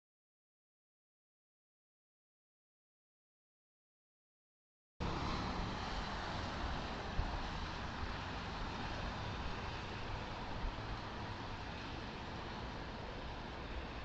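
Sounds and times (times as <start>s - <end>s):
car engine and tyre rumble: 5.0s - 14.0s.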